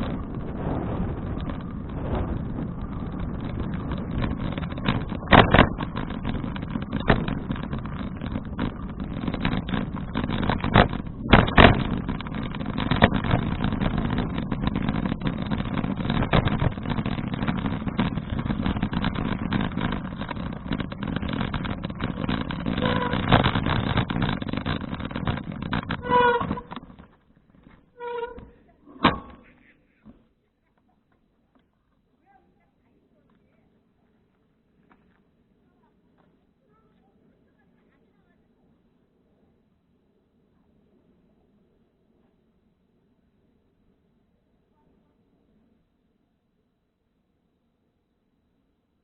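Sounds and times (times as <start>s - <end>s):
wind buffeting microphone: 0.0s - 27.1s
bicycle tyres rumbling on road: 0.0s - 30.3s, 33.1s - 49.0s
sharp knocks: 4.2s - 27.1s.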